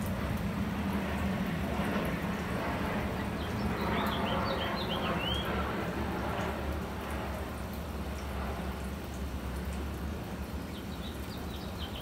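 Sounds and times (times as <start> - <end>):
low background hum and hiss: 0.0 - 12.0
songbird chirping: 10.7 - 12.0.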